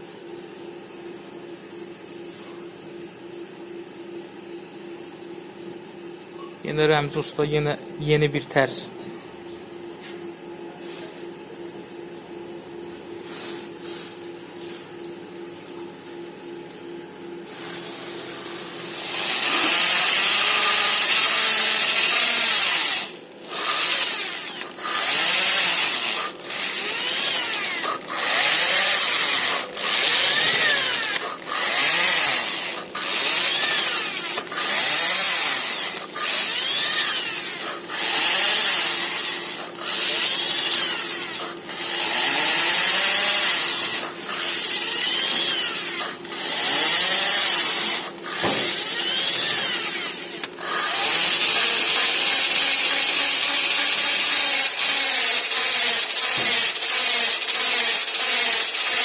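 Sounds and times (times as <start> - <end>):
power tool grinding valves: 18.8 - 59.0.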